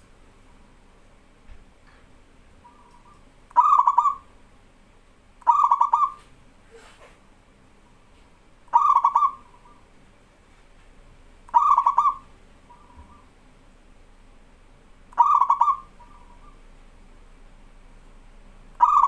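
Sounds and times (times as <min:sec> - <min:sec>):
dove cooing: 0:02.6 - 0:04.4, 0:05.4 - 0:07.0, 0:08.7 - 0:09.9, 0:11.5 - 0:13.4, 0:15.1 - 0:16.7, 0:18.8 - 0:19.0.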